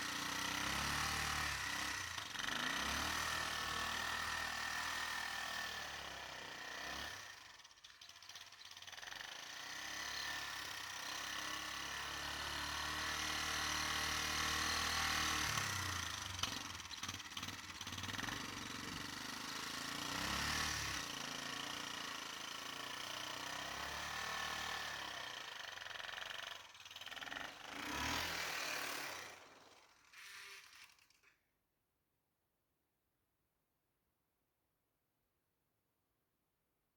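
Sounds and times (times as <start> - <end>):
engine revving up and down: 27.2 - 30.8.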